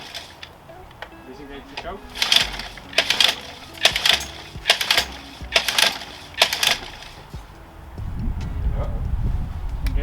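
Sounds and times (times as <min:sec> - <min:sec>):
recoil starter rope pulls: 0:00.0 - 0:00.6, 0:01.8 - 0:07.4.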